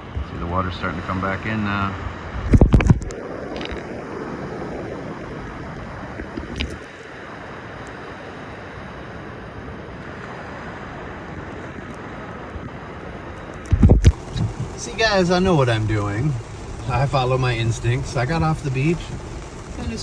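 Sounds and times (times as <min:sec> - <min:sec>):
wind buffeting microphone: 0:02.3 - 0:06.6, 0:13.6 - 0:20.0
surf washing on beach: 0:07.0 - 0:20.0.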